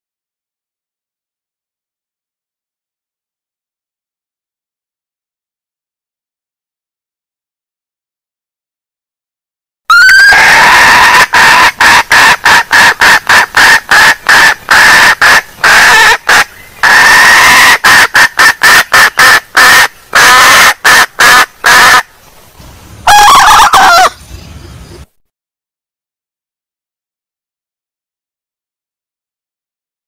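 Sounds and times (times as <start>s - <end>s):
hen clucking: 9.9s - 22.1s, 23.1s - 24.2s.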